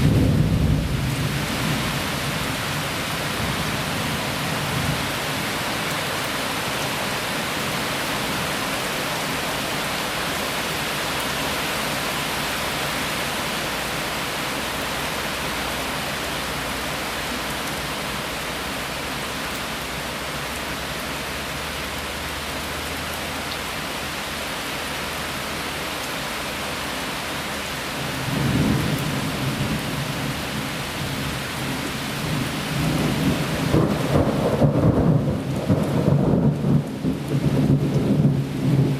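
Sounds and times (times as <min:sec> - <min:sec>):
thunder rumbling: 0:00.0 - 0:05.1, 0:28.2 - 0:38.9
heavy rain falling: 0:00.0 - 0:38.9.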